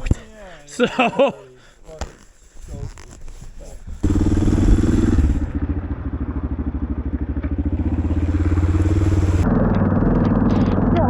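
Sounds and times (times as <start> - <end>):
motorcycle engine chugging: 4.0 - 11.0.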